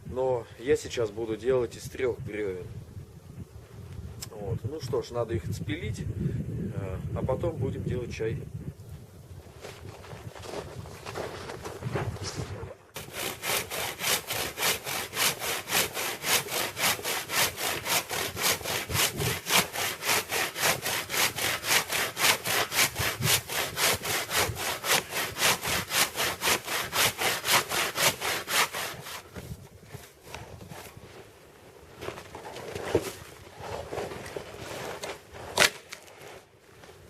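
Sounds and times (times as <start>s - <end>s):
hand saw cutting log: 13.0s - 29.5s, 34.8s - 36.1s.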